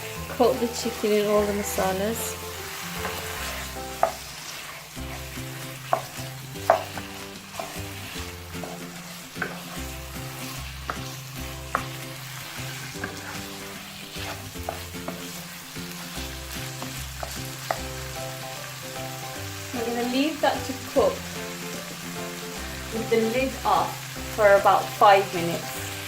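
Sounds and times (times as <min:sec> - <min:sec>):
chicken frying and sizzling: 0:00.0 - 0:26.0
utensil scraping a pan: 0:01.8 - 0:15.5.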